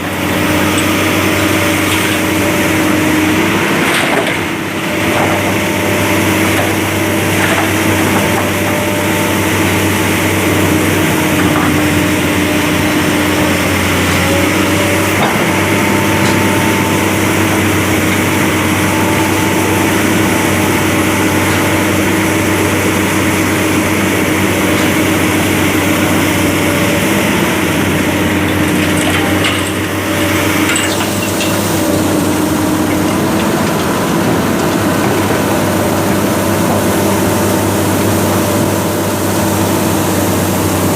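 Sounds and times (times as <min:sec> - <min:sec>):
heavy diesel machinery running: 0:00.0 - 0:40.9.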